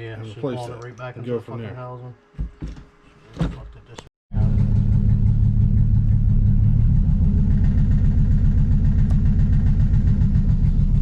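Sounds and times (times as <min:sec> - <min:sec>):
car engine idling: 0:04.4 - 0:11.0.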